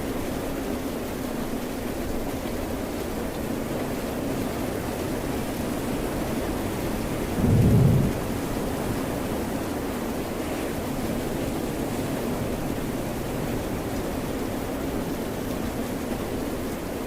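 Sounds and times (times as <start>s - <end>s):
rain: 0.0s - 17.0s
ocean surf: 7.3s - 9.4s
low rumble: 7.4s - 8.9s.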